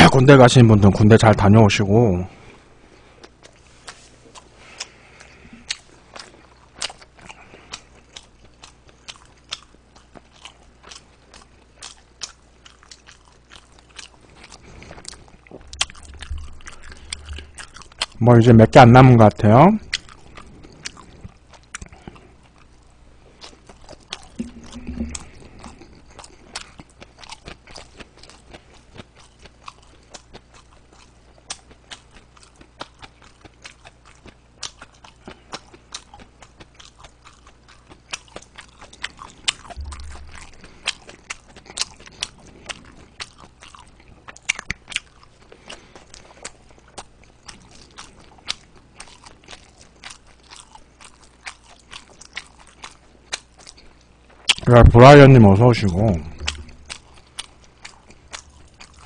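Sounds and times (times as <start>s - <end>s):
chewing dumplings: 0.0s - 59.0s
wet mouth clicks: 15.6s - 18.2s, 24.2s - 26.1s, 39.6s - 42.8s, 56.3s - 57.2s
dull low bump: 39.8s - 40.7s.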